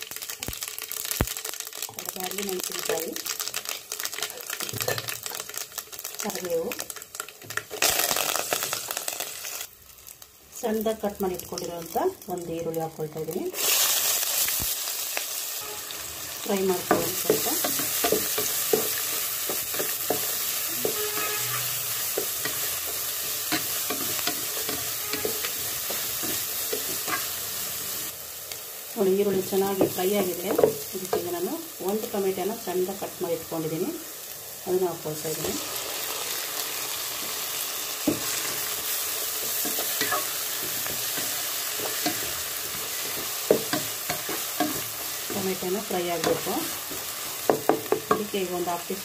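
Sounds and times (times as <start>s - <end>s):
onion sizzling in hot oil: 0.0s - 49.0s
spatula scraping a pan: 39.5s - 45.3s.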